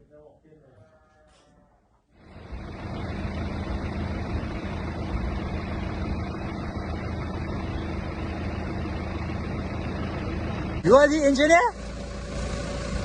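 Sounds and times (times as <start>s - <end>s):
engine running: 2.1s - 13.0s
rushing hiss: 11.7s - 13.0s.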